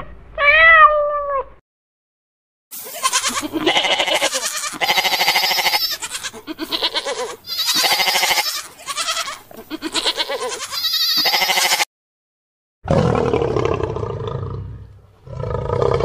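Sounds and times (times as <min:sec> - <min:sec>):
sheep bleating: 0:02.8 - 0:11.9.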